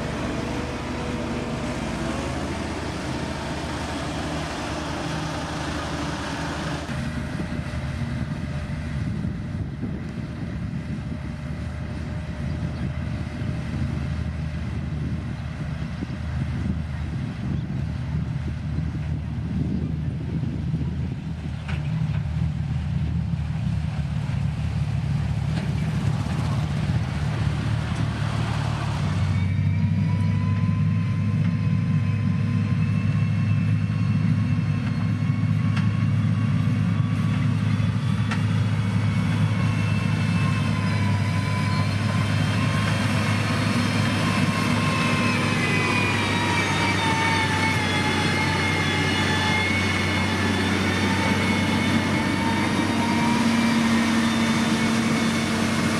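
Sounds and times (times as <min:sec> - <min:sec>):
diesel engine running: 0:00.0 - 0:55.9
high whine: 0:27.6 - 0:55.9.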